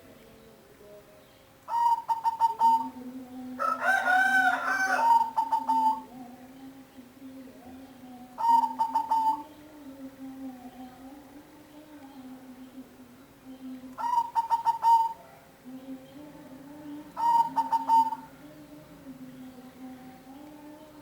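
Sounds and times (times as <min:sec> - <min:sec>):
bird calls: 0:01.2 - 0:06.1, 0:08.4 - 0:09.6, 0:14.0 - 0:15.4, 0:17.1 - 0:18.5.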